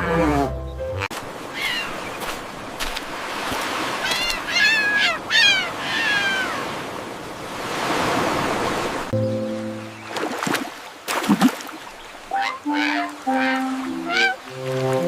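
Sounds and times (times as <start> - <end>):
high falling animal calls: 0.0 - 2.2, 3.8 - 6.8, 12.3 - 14.4.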